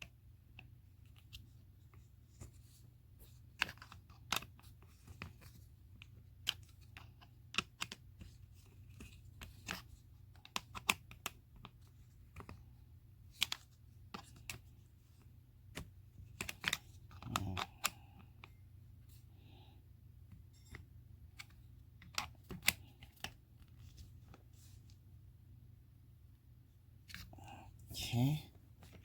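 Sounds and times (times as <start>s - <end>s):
small parts clicking and tapping: 3.2s - 12.6s, 13.3s - 18.6s.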